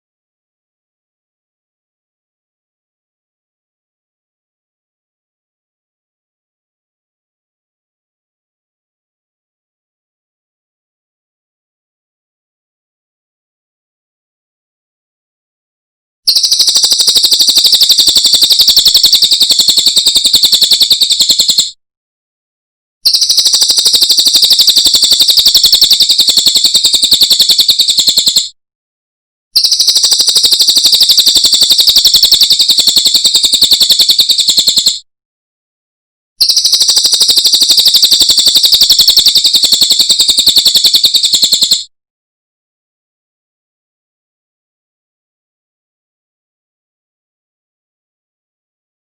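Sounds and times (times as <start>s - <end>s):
bird fast trill: 16.3s - 21.8s, 23.0s - 28.6s, 29.6s - 35.0s, 36.4s - 41.8s.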